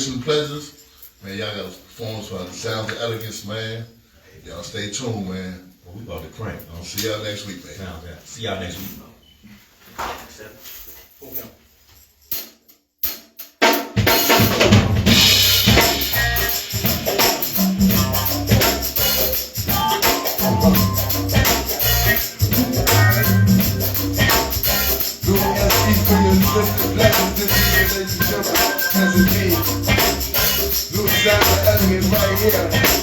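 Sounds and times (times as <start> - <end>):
drum kit beat: 12.3 - 33.0
bass line: 15.0 - 33.0.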